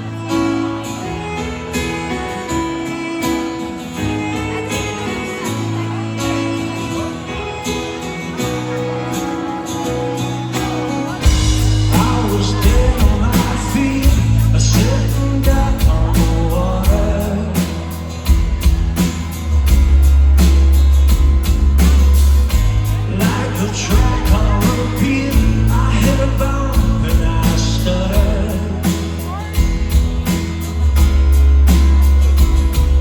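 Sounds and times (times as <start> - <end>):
bass: 0.0 - 33.0
drums: 0.0 - 33.0
guitar: 0.0 - 33.0
person singing: 3.8 - 18.4, 22.9 - 30.0.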